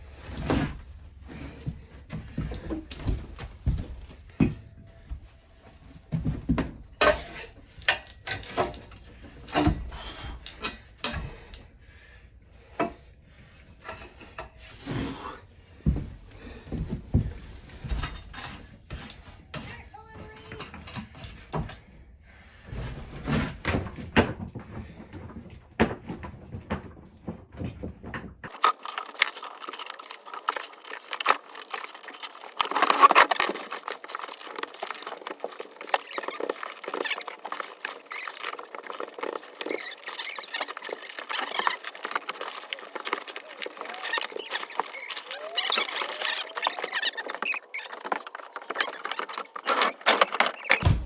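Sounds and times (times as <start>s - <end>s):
shovels scraping: 28.5s - 50.9s
heavy thuds: 50.8s - 51.0s.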